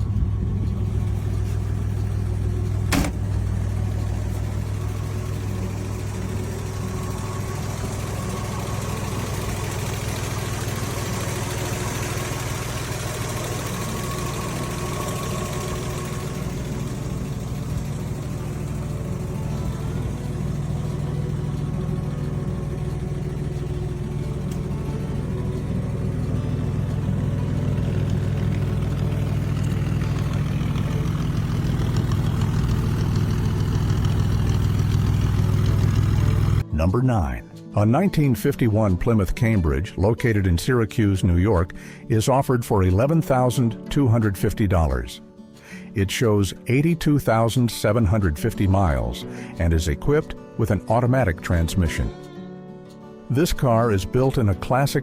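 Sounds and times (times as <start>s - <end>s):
car engine idling: 0.0s - 36.6s.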